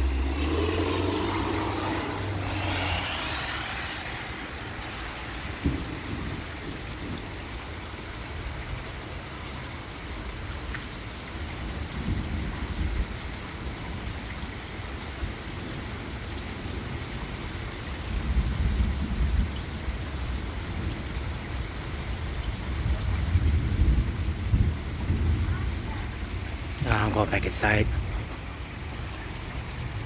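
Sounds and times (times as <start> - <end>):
thunder rumbling: 0.0 - 7.4, 18.2 - 30.0
steady rain falling: 0.0 - 30.0.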